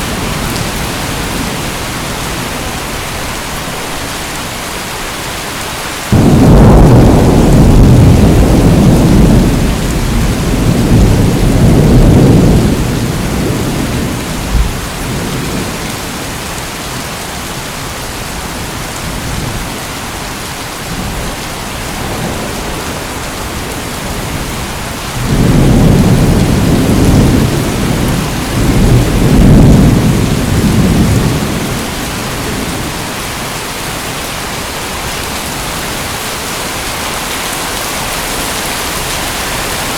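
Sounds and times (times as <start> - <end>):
steady rain: 0.0 - 39.9
thunder rolling: 6.1 - 16.4, 21.0 - 33.1.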